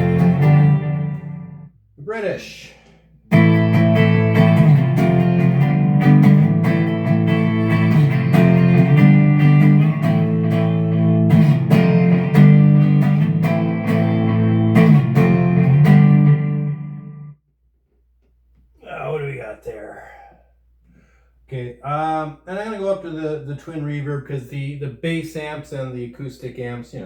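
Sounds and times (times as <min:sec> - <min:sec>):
electric guitar chords ringing: 0:00.0 - 0:01.8, 0:03.3 - 0:17.4.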